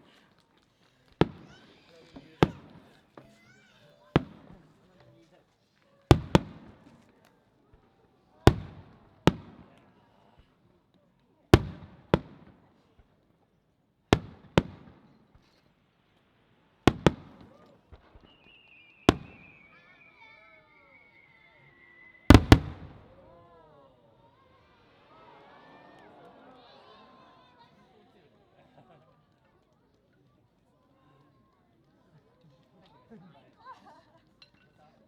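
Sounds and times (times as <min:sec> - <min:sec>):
firework shells bursting: 0:14.2 - 0:20.0, 0:22.2 - 0:23.3
long falling whistle: 0:18.2 - 0:22.4.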